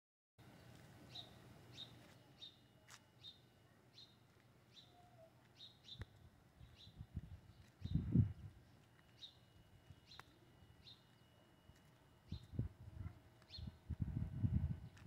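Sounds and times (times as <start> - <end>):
faint street ambience: 0.4 - 15.0
small bird chirping: 0.6 - 8.2.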